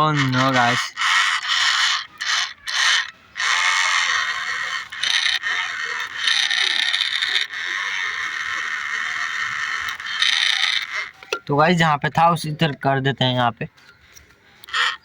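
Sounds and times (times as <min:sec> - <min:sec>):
toy electric motor whirring: 0:00.2 - 0:11.2.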